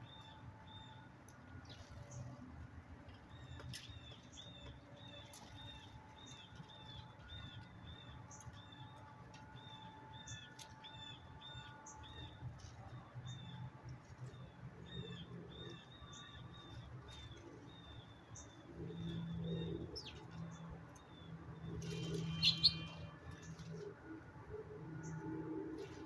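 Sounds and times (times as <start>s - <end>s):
faint bird chirping: 14.2s - 23.8s.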